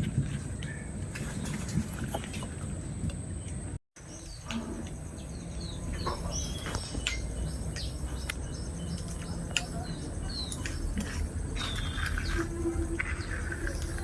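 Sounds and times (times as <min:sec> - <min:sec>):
birds chirping: 0:00.3 - 0:14.0
high insect hum: 0:04.5 - 0:14.0.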